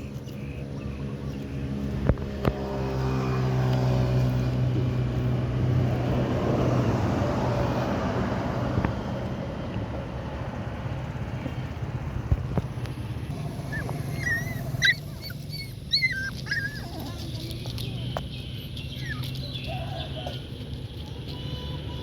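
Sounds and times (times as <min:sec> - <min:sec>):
puppies whimpering and squealing: 0:13.5 - 0:20.6.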